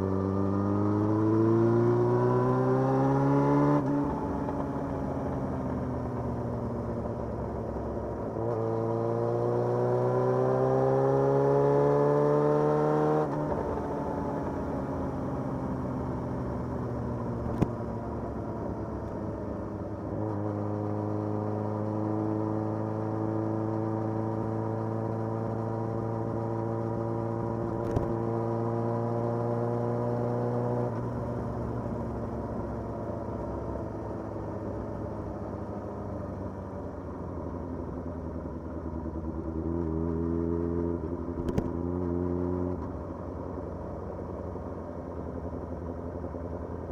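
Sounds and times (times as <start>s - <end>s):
motorcycle engine: 13.2s - 20.0s.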